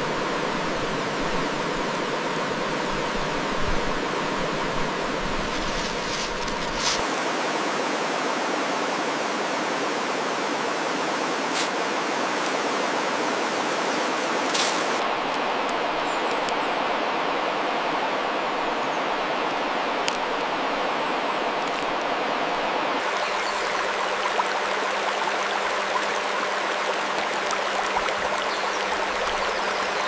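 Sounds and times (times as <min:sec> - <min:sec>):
running water hiss: 0:04.5 - 0:17.0, 0:18.5 - 0:30.0.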